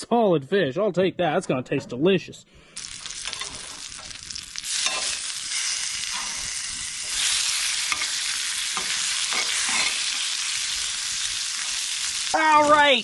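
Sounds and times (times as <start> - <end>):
fish sizzling in a skillet: 2.8 - 13.0
metal tongs scraping a pan: 3.2 - 10.5.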